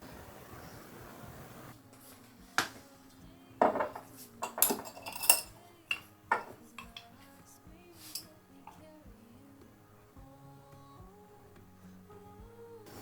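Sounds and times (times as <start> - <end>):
dishes and utensils clinking: 1.9 - 7.4, 8.0 - 8.8.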